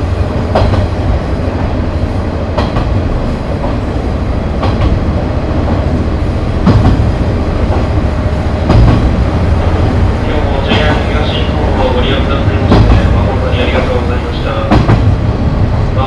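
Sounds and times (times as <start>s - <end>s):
railcar engine rumble: 0.0s - 16.0s
wheel knock over rail joints: 6.6s - 7.1s, 7.7s - 9.2s, 12.6s - 13.8s, 14.5s - 15.2s.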